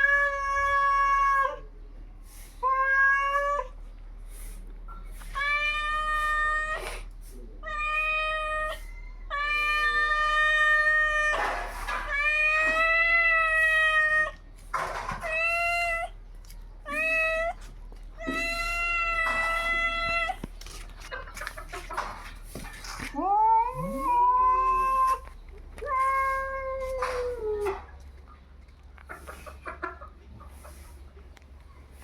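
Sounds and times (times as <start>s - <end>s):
cats yowling: 0.0s - 1.7s, 2.6s - 3.8s, 5.4s - 14.4s, 15.2s - 16.2s, 16.8s - 20.4s, 23.0s - 28.0s
cats hissing: 2.2s - 16.2s, 16.8s - 28.0s.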